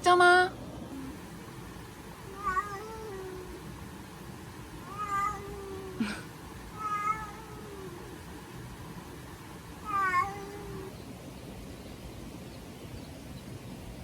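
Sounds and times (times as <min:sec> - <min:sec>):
cat meowing: 0:02.2 - 0:03.7, 0:04.8 - 0:06.1, 0:06.7 - 0:08.3, 0:09.8 - 0:11.0.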